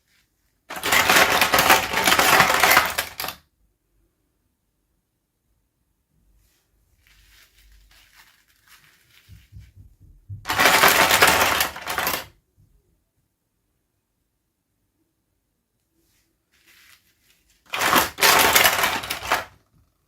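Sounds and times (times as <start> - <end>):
packaging rustling and crinkling: 0.0 - 3.4, 7.0 - 9.9, 10.5 - 12.3, 16.5 - 19.6.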